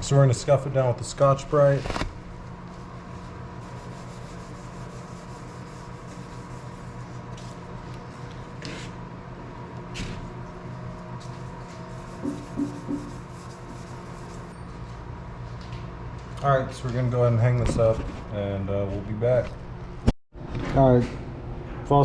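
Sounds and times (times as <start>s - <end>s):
scouring pad rubbing metal panel: 2.8s - 7.2s, 11.7s - 14.5s.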